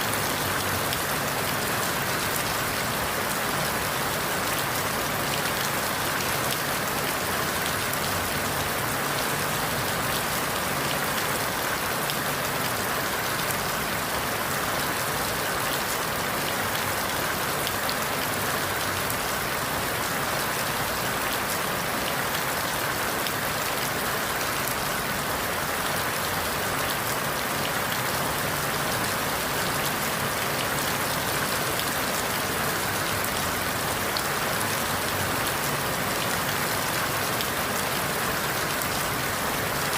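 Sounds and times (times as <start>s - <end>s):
rain falling through leaves: 0.0s - 39.9s.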